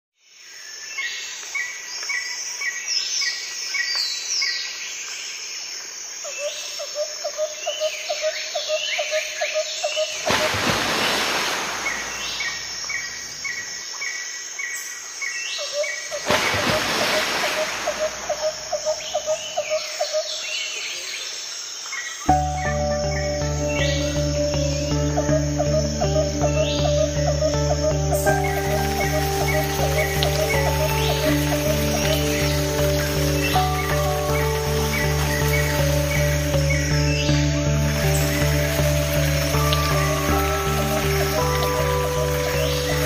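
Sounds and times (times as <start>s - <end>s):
birds chirping and whistling: 22.3s - 43.0s
low pulsing bird trill: 22.3s - 43.0s.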